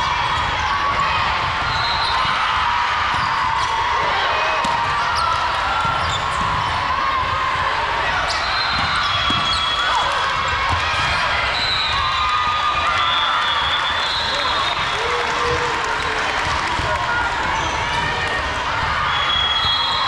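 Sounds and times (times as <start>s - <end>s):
sneakers squeaking on gym floor: 5.1s - 6.8s, 8.2s - 12.0s.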